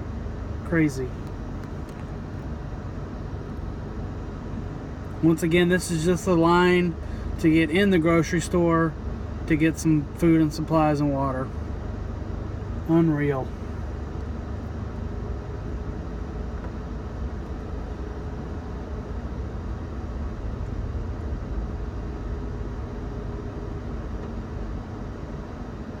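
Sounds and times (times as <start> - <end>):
car engine and road rumble: 0.0 - 26.0
faint steady hum: 0.0 - 26.0.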